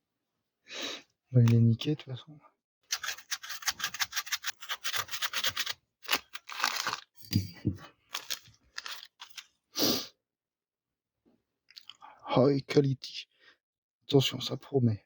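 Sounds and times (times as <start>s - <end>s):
scraping gasket off metal: 2.9s - 5.7s.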